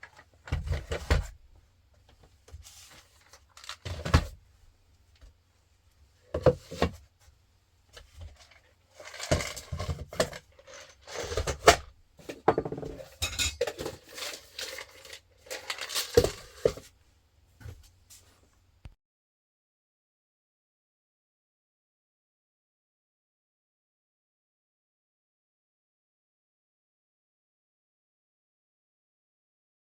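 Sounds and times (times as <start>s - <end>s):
hard objects knocking and clinking: 9.0s - 16.8s.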